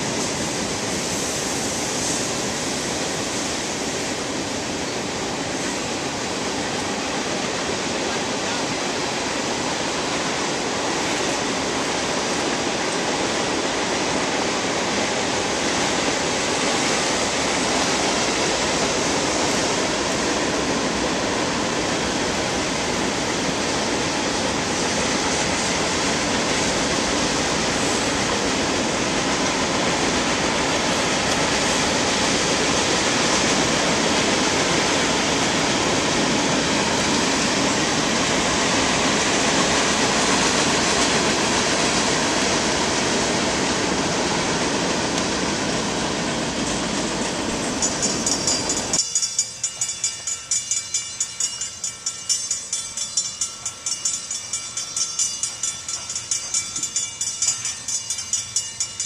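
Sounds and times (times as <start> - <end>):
freight train wheels rushing: 0.0 - 59.0.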